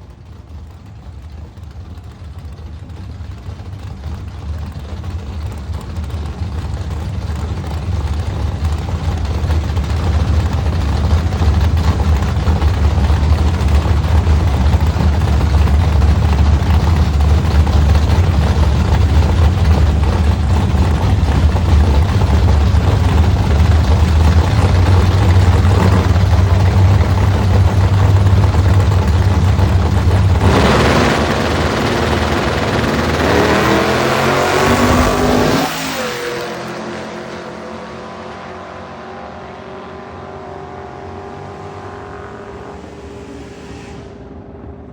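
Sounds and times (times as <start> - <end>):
racing car engine idling: 0.0 - 44.9
engine revving: 8.3 - 44.9.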